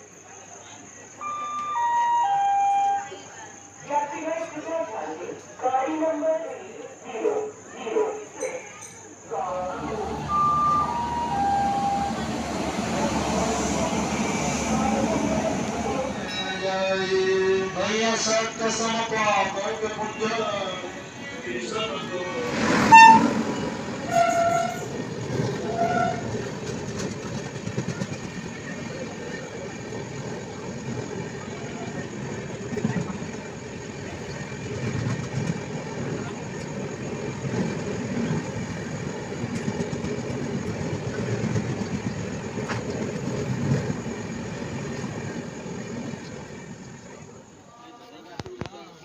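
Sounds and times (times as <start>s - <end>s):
rail clatter: 8.8s - 17.2s, 21.7s - 47.3s
train wheels rumbling on track: 9.3s - 47.6s
train horn toots: 9.5s - 15.4s, 22.8s - 26.5s.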